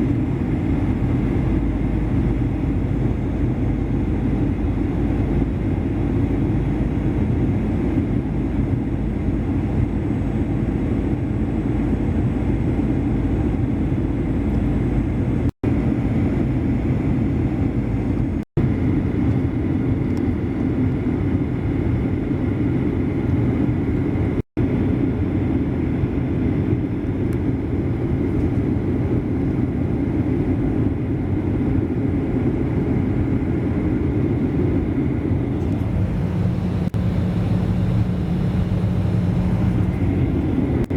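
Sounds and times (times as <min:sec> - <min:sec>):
airliner engines droning: 0:00.0 - 0:40.9
air rushing past fuselage: 0:35.0 - 0:40.9.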